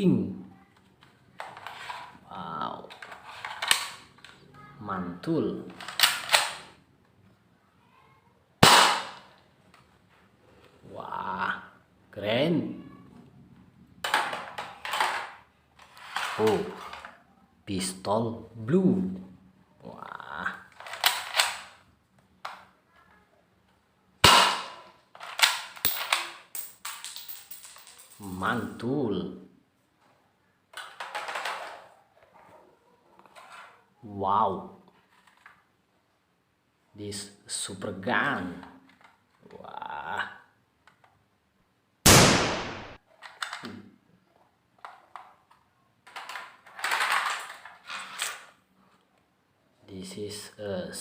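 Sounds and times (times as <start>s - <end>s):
plastic toy clicks and knocks: 2.8s - 4.4s, 5.7s - 6.7s, 20.7s - 21.8s, 30.7s - 31.9s, 43.1s - 43.8s, 44.8s - 48.5s
toy pistol shots: 8.6s - 9.3s, 24.2s - 24.8s, 42.1s - 43.0s.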